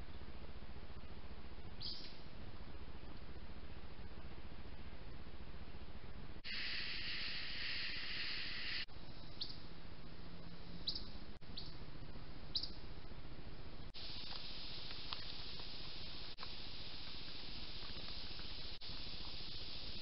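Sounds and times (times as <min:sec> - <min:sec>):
steady high hiss: 0:06.4 - 0:13.2, 0:13.8 - 0:20.0.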